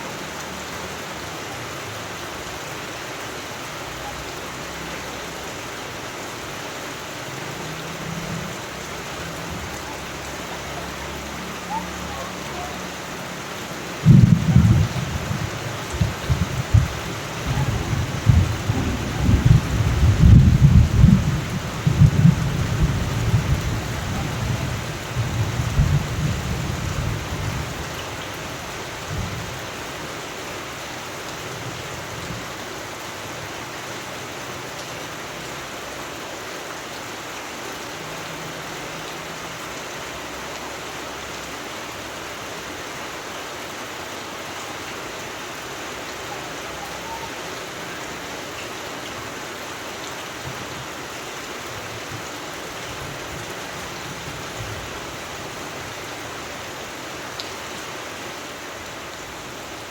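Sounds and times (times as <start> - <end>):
steady rain: 0.0 - 59.9
thunder rumbling: 14.0 - 28.0.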